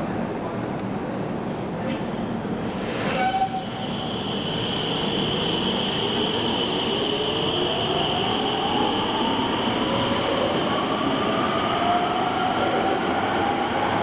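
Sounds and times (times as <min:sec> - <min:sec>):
rail noise: 0:00.6 - 0:14.0.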